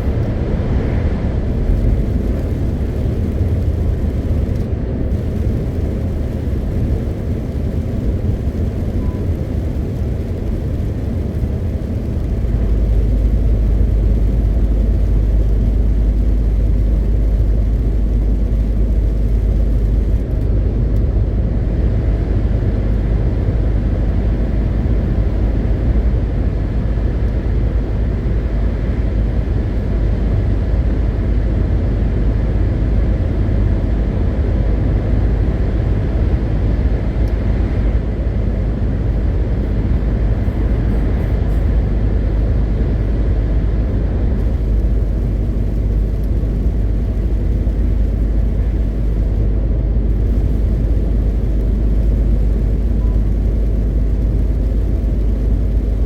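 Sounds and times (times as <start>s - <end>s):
truck engine and tyre rumble: 0.0s - 56.0s.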